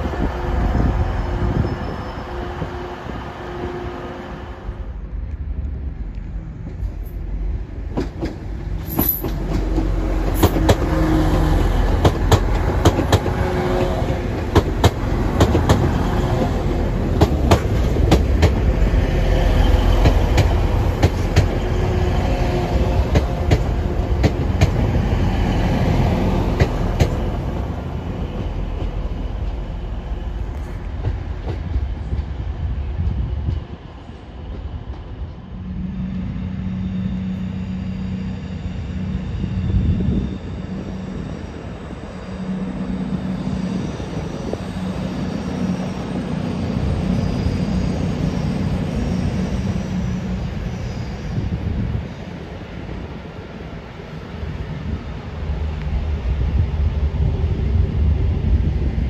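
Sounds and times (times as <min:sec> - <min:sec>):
diesel train engines rumbling: 0:00.0 - 0:59.0
train wheels clicking over rail joints: 0:07.8 - 0:18.9, 0:20.0 - 0:21.7.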